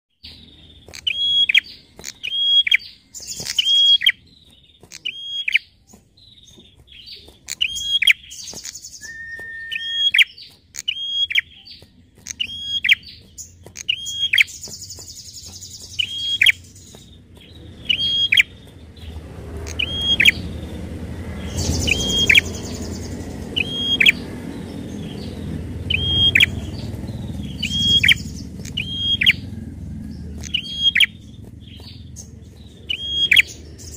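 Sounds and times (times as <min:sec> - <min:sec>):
bird calling sharp notes: 0:00.3 - 0:29.7, 0:30.4 - 0:33.9
low rumbling noise: 0:14.5 - 0:33.9.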